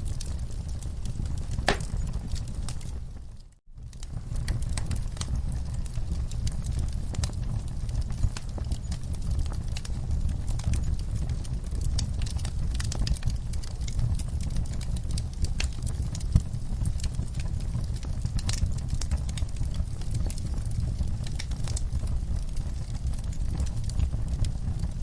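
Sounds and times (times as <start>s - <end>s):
low rumble of flames: 0.0s - 25.0s
wood fire crackling: 0.0s - 25.0s.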